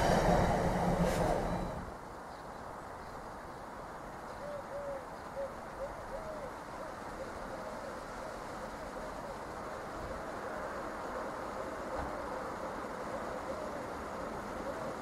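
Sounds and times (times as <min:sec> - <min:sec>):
steady background hiss: 0:00.0 - 0:15.0
pigeon cooing: 0:04.4 - 0:09.4, 0:13.1 - 0:14.0.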